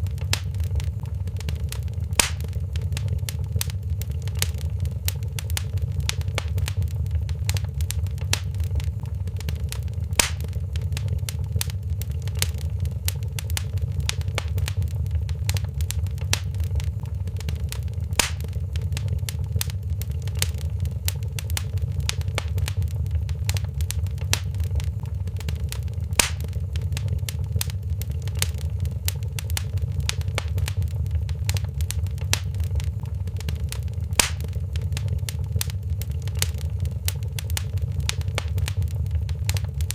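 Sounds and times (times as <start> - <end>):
wood fire crackling: 0.0 - 39.9
loud fire pop: 1.6 - 3.5, 9.6 - 11.8, 13.2 - 19.8, 21.2 - 27.8, 29.2 - 35.8.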